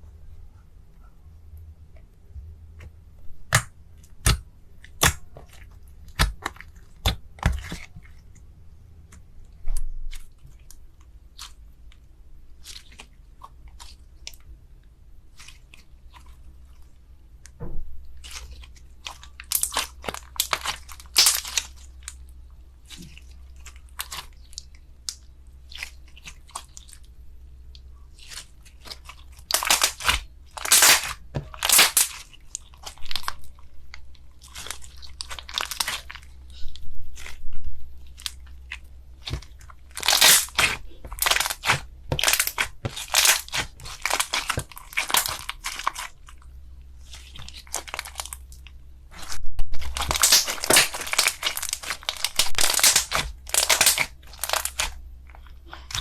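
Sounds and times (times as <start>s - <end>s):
slime crackling and crunching: 3.4s - 9.3s, 18.1s - 27.2s, 27.8s - 56.0s.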